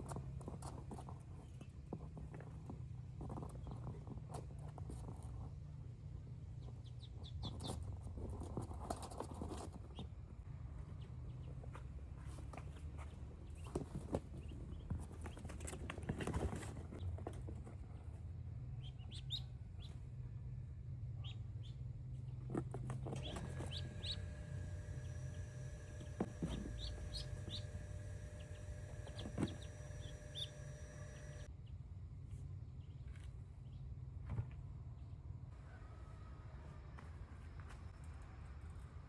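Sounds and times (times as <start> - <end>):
chickens clucking: 23.1 - 31.5
chicken calls: 23.2 - 31.5.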